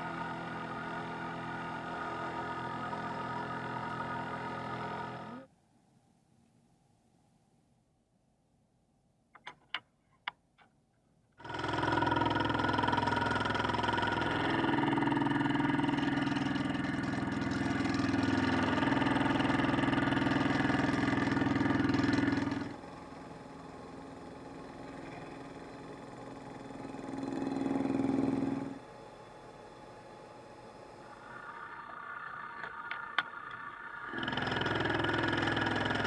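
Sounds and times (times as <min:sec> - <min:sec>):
machine tool motor humming: 0:11.4 - 0:36.0.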